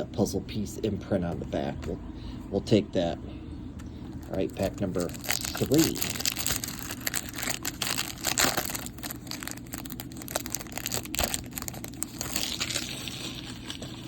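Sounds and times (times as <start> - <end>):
plastic pack crinkling and tearing: 4.1 - 14.0.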